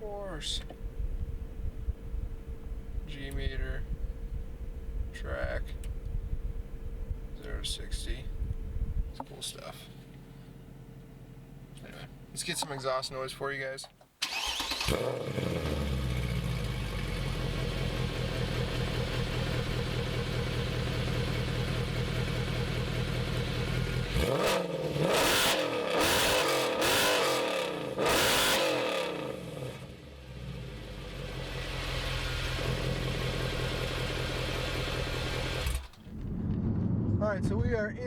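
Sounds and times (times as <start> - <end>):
car engine idling and revving: 14.3 - 36.8.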